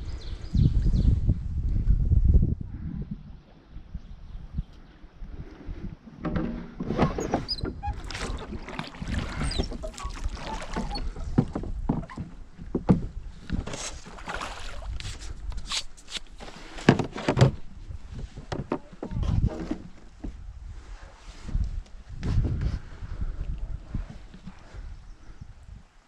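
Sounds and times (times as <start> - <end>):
water splashing: 7.1 - 12.3, 13.6 - 15.3.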